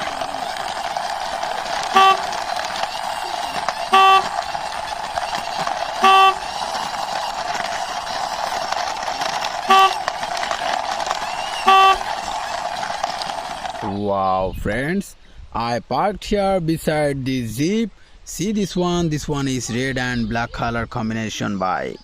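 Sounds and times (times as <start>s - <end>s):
short horn toots: 1.9s - 2.4s, 3.9s - 4.4s, 6.0s - 6.5s, 9.7s - 10.1s, 11.6s - 12.1s.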